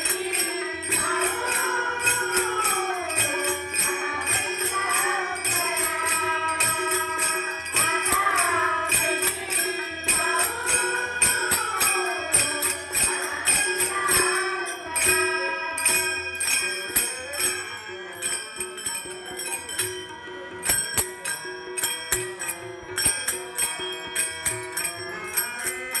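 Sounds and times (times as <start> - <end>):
women singing devotional song: 0.0 - 17.8
hand cymbals jingling: 0.0 - 26.0.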